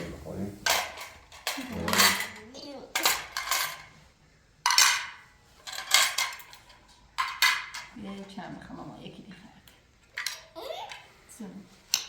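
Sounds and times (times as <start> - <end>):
spoons and dishes clinking: 0.7 - 2.4.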